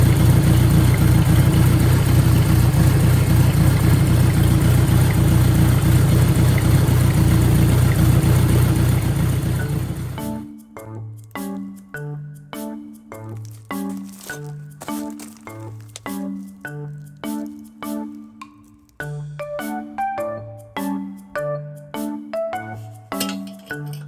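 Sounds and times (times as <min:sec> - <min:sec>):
motorcycle engine idling loudly: 0:00.0 - 0:10.4.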